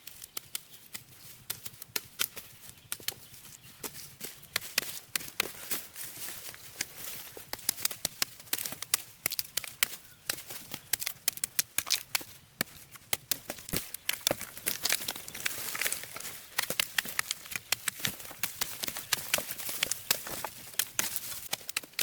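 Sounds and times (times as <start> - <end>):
sharp clicks and knocks: 6.2 - 22.0.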